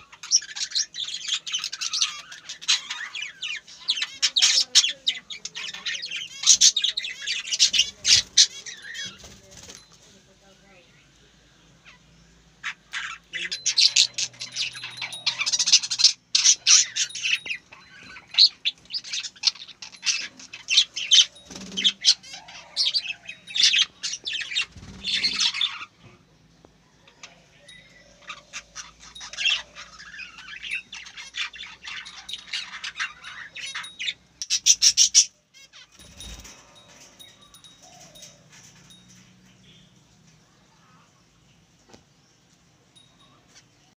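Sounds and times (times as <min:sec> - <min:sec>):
bird chirping and squawking: 0:00.0 - 0:09.7, 0:11.8 - 0:26.2, 0:27.1 - 0:39.8.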